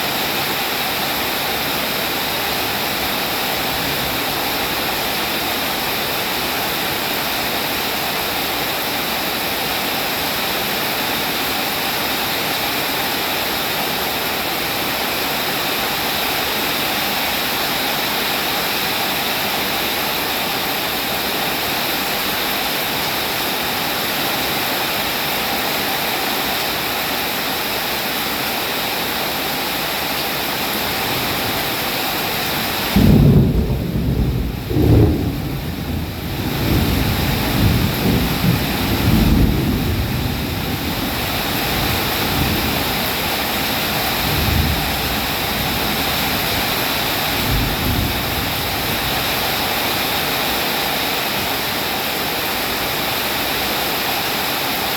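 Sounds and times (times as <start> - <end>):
rain falling: 0.0 - 54.9
thunder rumble: 32.6 - 49.4.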